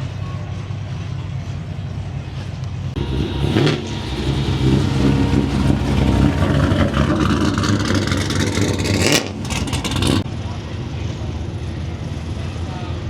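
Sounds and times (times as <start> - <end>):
car engine running: 2.8 - 10.2.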